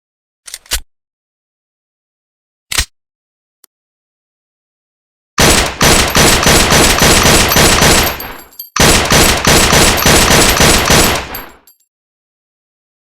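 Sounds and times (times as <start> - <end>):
rapid gunshots: 5.4 - 11.7.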